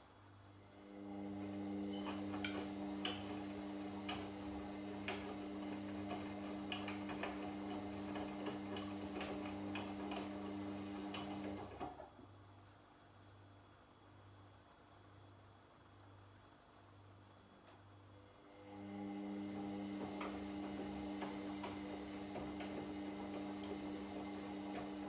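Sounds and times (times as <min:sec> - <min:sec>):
washing machine motor hum: 0:00.5 - 0:12.1, 0:18.0 - 0:25.0.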